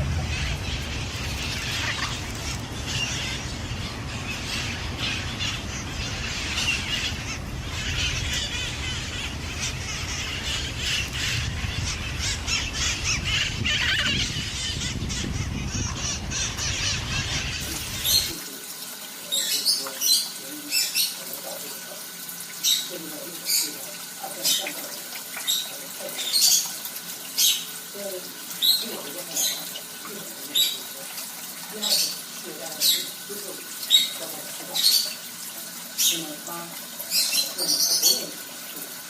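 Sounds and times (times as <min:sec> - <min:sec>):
steady low rumble: 0:00.0 - 0:17.6
parrots squawking and screeching: 0:00.0 - 0:18.6, 0:19.2 - 0:39.0.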